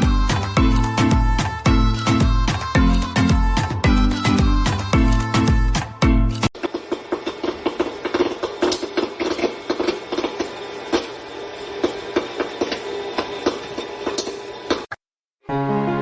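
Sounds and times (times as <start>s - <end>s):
mechanical hum: 6.5s - 15.0s
rapid clicking and knocking: 6.6s - 11.1s.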